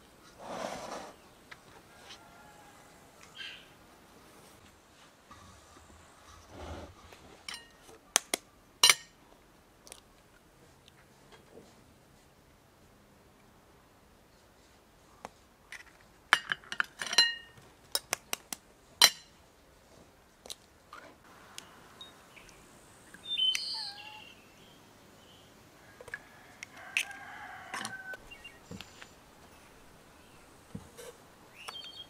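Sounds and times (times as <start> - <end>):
birds chirping: 3.2 - 3.8, 21.4 - 25.6, 28.0 - 30.7, 31.4 - 32.0.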